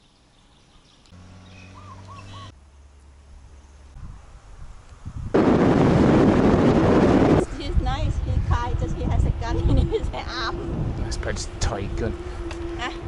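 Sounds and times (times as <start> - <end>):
bird chirping: 0.0 - 4.0
wind on microphone: 4.0 - 13.0.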